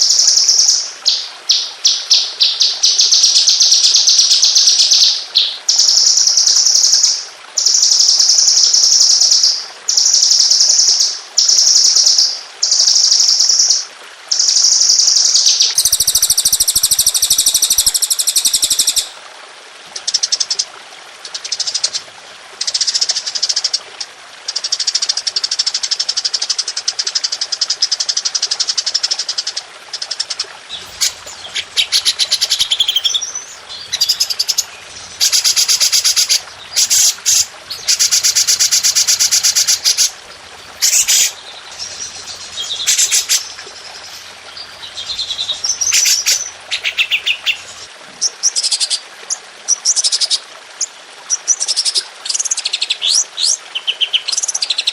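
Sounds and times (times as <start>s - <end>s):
songbird rapid-fire trills: 30.7s - 47.9s.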